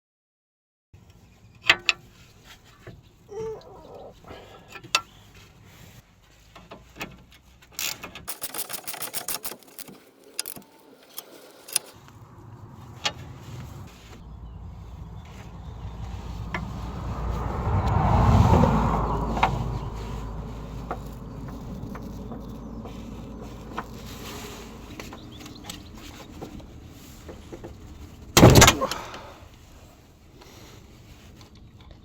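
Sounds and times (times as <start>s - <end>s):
metallic clicks of hand tools: 7.8s - 12.0s
rapid clicking: 8.3s - 11.9s.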